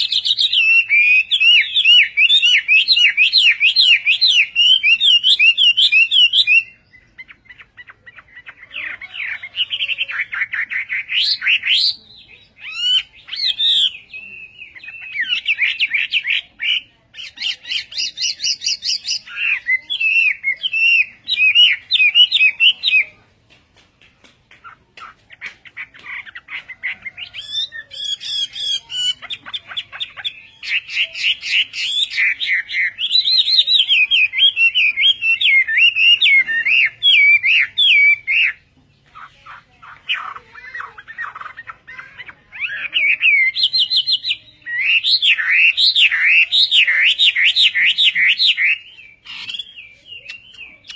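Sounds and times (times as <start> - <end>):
bird singing whistled notes: 0.0 - 7.7, 30.3 - 38.6.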